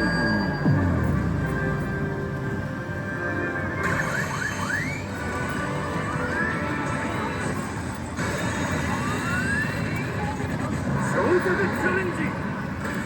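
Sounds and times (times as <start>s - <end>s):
rising whistle-like sweeps: 0.0s - 1.8s
slot machine music and effects: 0.0s - 10.0s.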